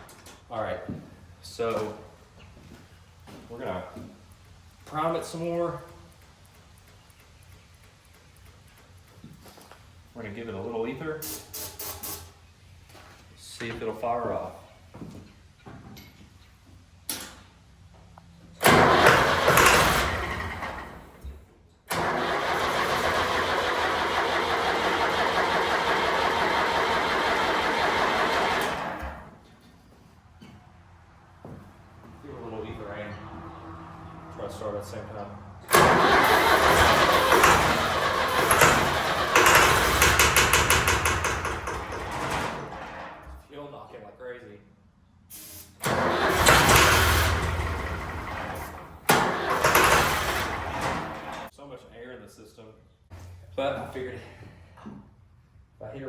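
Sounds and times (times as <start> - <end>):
starter cranking diesel engine: 18.6 - 21.2, 21.9 - 29.3, 35.6 - 43.0, 45.8 - 51.5
short hiss: 45.3 - 45.8.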